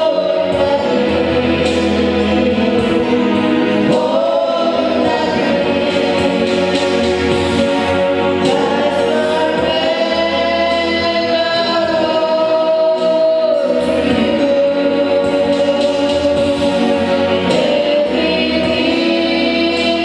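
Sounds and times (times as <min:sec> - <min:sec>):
choir singing a worship song: 0:00.0 - 0:20.0.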